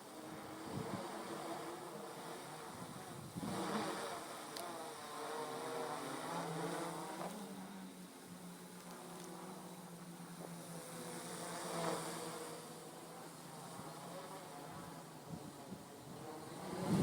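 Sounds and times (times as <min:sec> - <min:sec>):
quadcopter propellers buzzing: 0:00.0 - 0:17.0.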